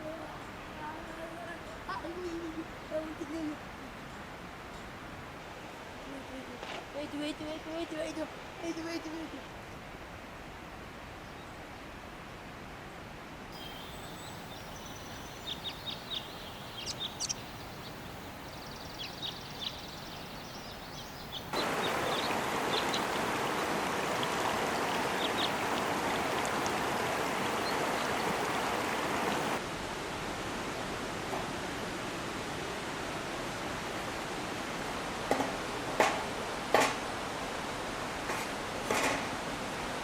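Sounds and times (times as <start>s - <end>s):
small birds chirping: 13.6s - 29.6s
river rushing over rocks: 13.6s - 35.2s.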